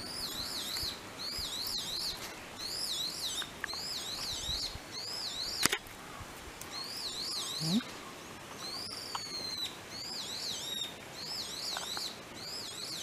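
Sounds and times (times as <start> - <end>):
bird singing whistles: 8.6 - 13.0.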